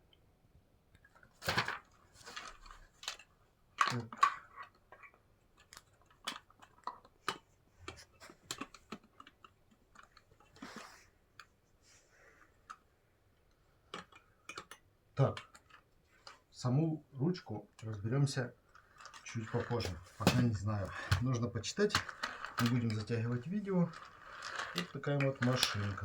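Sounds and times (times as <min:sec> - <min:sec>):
plastic parts clicking and tapping: 0:01.0 - 0:10.8, 0:12.6 - 0:16.5, 0:18.6 - 0:26.0.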